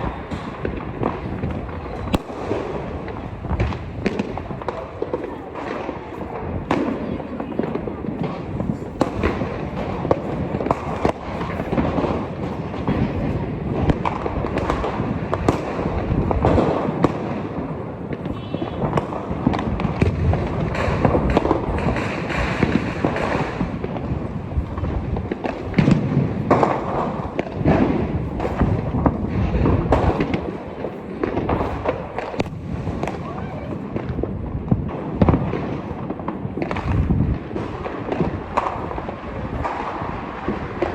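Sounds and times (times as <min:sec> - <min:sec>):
fireworks popping and banging: 0:00.0 - 0:40.9.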